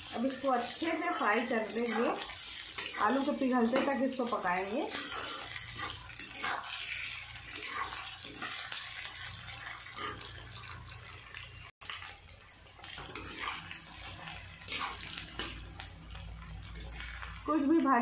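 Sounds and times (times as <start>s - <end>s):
vegetables sizzling in hot oil: 0.0s - 18.0s
spatula scraping a pan: 0.1s - 12.1s, 12.9s - 15.9s.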